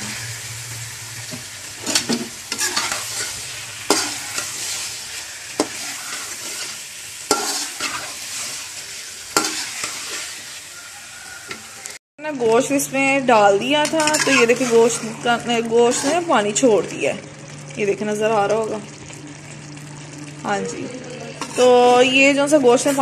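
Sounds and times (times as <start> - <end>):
masala sizzling in oil: 0.0 - 23.0
spoon scraping and knocking pan: 5.6 - 6.7, 7.3 - 8.6, 9.3 - 10.5, 13.8 - 15.1.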